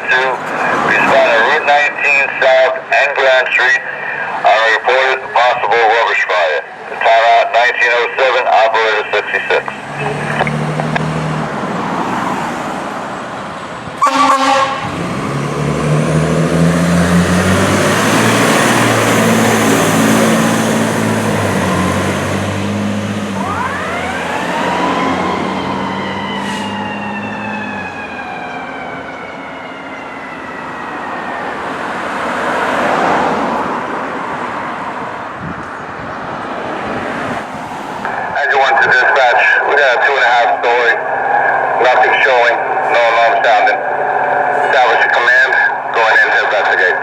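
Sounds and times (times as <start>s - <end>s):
siren wailing: 0.7s - 11.1s, 14.0s - 15.4s, 23.2s - 32.4s, 38.1s - 47.0s
diesel engine revving: 9.2s - 29.4s
air horn blast: 14.0s - 15.1s.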